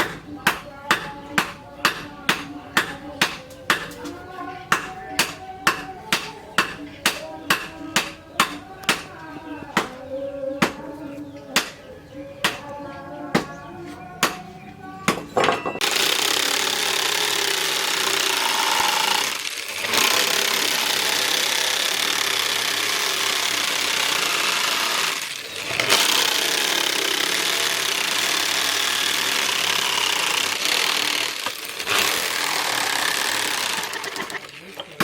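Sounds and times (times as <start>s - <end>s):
power grinder grinding steel: 15.8s - 35.0s.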